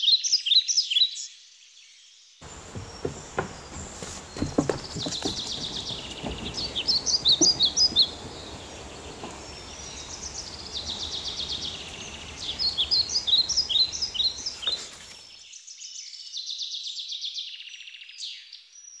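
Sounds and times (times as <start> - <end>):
birds chirping and trilling: 2.4 - 15.3
steady background hiss: 2.4 - 15.3.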